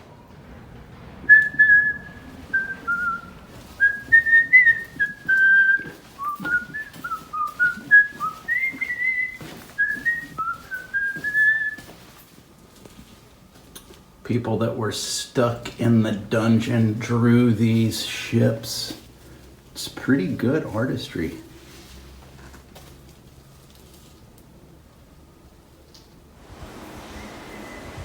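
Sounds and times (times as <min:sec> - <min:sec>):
person whistling a tune: 0:01.3 - 0:12.0.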